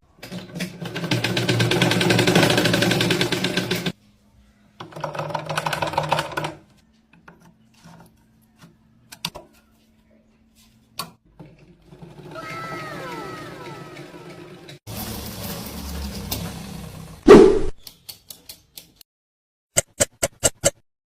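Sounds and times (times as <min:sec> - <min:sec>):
sewing machine stitching: 0:00.2 - 0:04.0.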